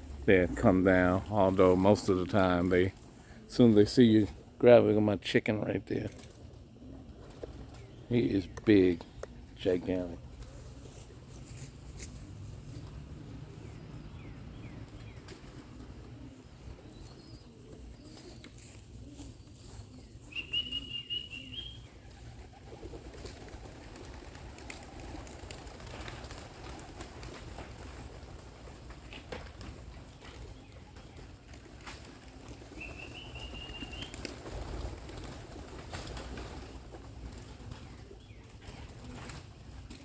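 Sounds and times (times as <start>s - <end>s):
pigeons cooing: 6.0s - 40.0s
clear chirping call: 20.3s - 21.9s.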